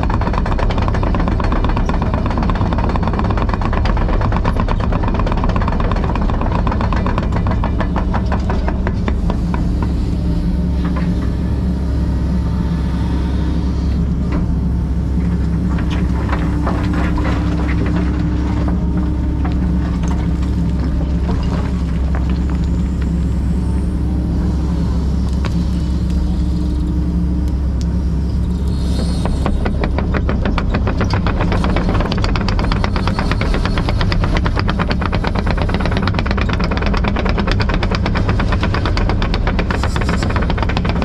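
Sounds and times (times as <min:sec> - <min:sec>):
rapid metallic clicking and clatter: 0:00.0 - 0:09.6, 0:28.4 - 0:41.0
excavator diesel engine humming: 0:00.0 - 0:41.0.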